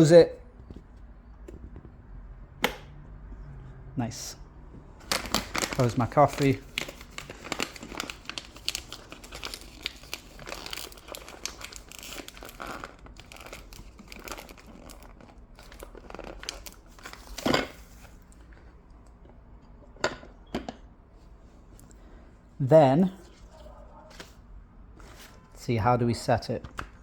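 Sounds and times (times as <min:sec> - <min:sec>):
coffee bag crinkling: 0:05.0 - 0:18.2.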